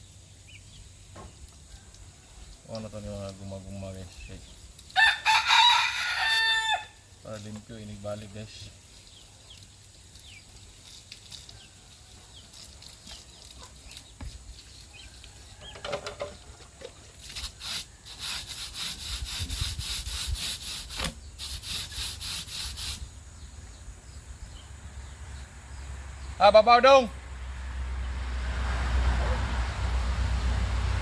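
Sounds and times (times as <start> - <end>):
brush scrubbing a radiator: 17.1 - 23.1.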